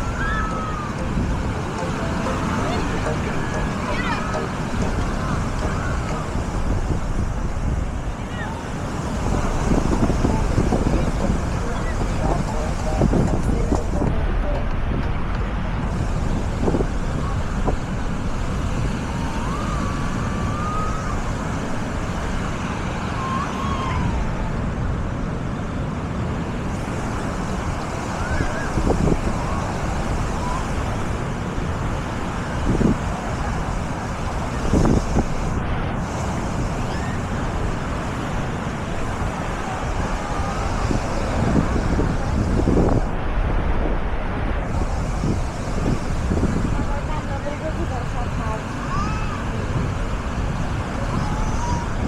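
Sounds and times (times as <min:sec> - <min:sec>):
distant voices calling out: 0:00.0 - 0:07.4, 0:08.0 - 0:14.9
surf: 0:00.0 - 0:52.0
waves washing: 0:00.0 - 0:52.0
wind noise: 0:00.0 - 0:52.0
faint distant voices: 0:08.0 - 0:15.0.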